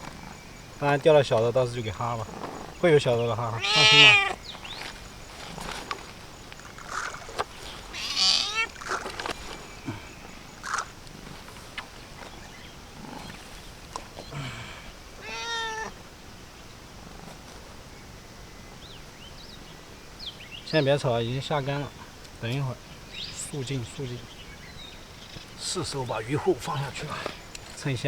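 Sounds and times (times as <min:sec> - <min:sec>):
cat meowing: 0:03.5 - 0:04.4, 0:07.9 - 0:08.9, 0:15.2 - 0:16.0.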